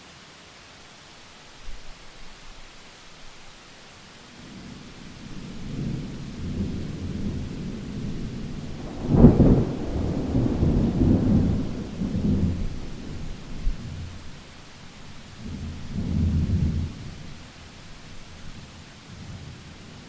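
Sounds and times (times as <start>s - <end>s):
steady rain: 0.0s - 20.0s
thunder rumbling and clapping: 5.5s - 14.2s.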